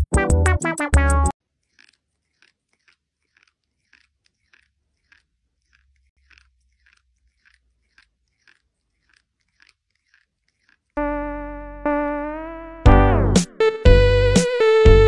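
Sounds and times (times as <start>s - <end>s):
faint crunching: 1.4s - 11.5s.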